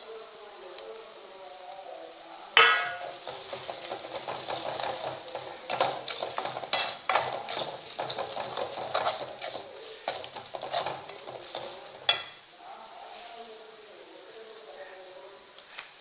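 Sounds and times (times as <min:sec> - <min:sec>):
metal spoon scraping a pan: 0:02.6 - 0:12.4
spoon clanging against pan: 0:02.6 - 0:12.4.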